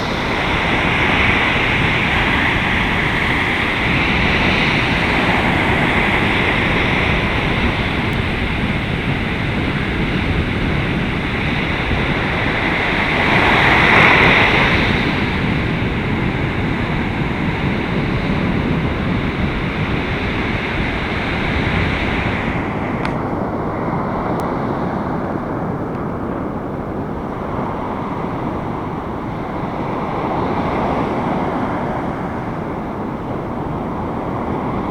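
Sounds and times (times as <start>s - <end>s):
surf breaking: 0.0s - 18.6s
strong wind on microphone: 0.0s - 34.9s.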